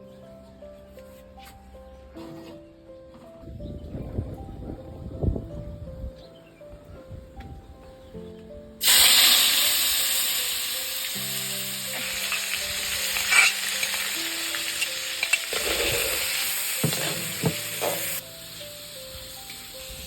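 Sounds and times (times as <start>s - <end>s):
quiet background music: 0.0s - 20.0s
food sizzling in hot oil: 8.8s - 20.0s.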